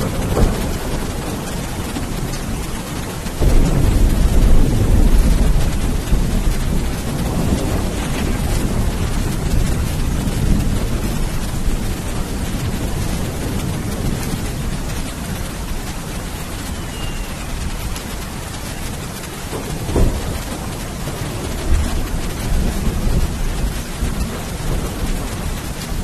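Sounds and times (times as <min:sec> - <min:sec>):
heavy rain: 0:00.0 - 0:26.0
thunder rumbling: 0:00.0 - 0:26.0.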